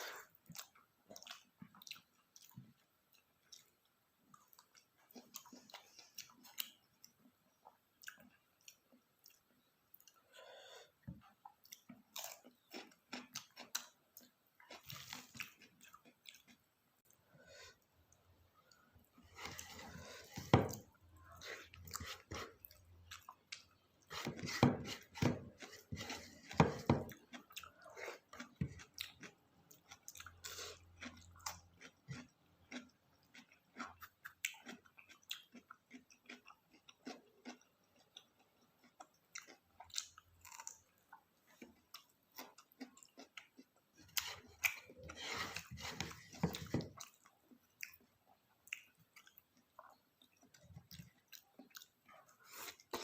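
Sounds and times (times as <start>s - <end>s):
person crunching food: 11.7s - 16.6s, 21.7s - 53.0s.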